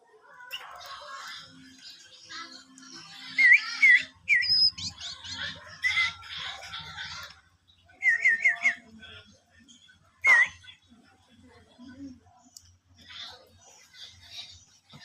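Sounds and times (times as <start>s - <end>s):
bird scratchy chatter: 0.5s - 7.4s.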